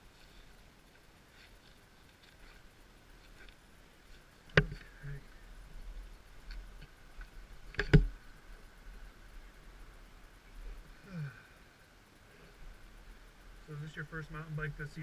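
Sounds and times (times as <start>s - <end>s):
faint ticks: 0.1s - 5.2s.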